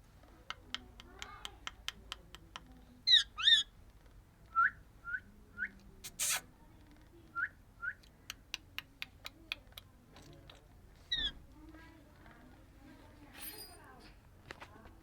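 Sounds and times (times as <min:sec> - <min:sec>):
parrot chirping: 0:03.1 - 0:03.7, 0:06.0 - 0:06.4, 0:11.1 - 0:11.4
parrot squawk: 0:03.1 - 0:03.7.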